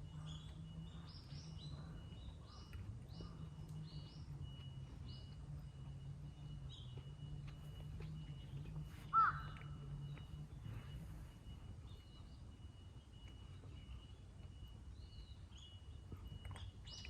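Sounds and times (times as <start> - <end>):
small bird high calls: 0.0 - 11.1
steady low hum: 0.0 - 17.0
crow cawing: 9.1 - 9.7.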